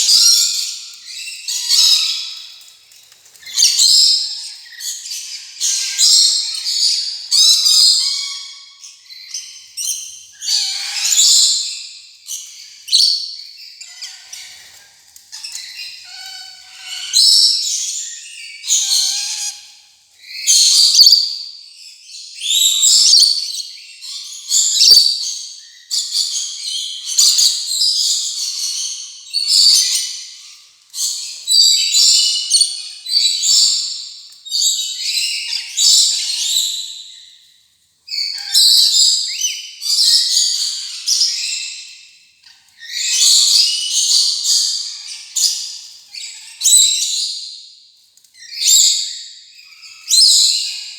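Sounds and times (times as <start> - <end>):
lorikeet shrill screechy calls: 5.2 - 11.8, 22.4 - 26.0, 48.4 - 50.8.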